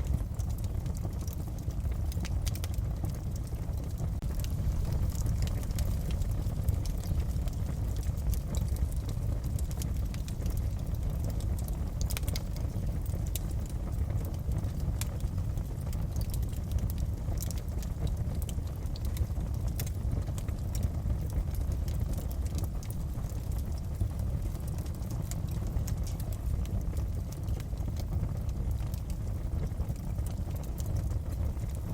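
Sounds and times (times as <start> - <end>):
fire crackling and popping: 0.0 - 31.9
low roar of flames: 0.0 - 31.9.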